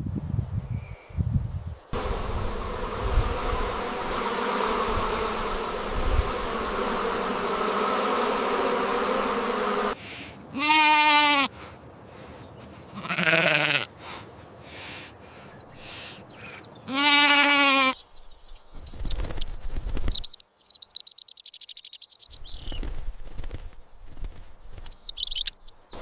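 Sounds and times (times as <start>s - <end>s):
steady drone: 2.0s - 10.0s
sheep bleating: 10.5s - 11.5s, 12.9s - 13.9s, 16.9s - 18.0s.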